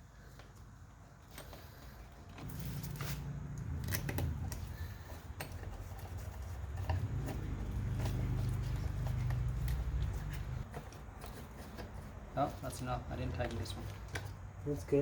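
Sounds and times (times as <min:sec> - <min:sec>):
parts clicking and knocking: 0:03.5 - 0:12.3.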